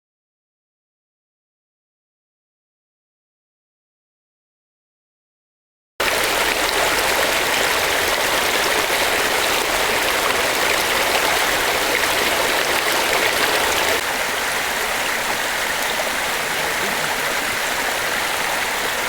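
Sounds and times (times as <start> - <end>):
rushing hiss of water: 6.0 - 19.0.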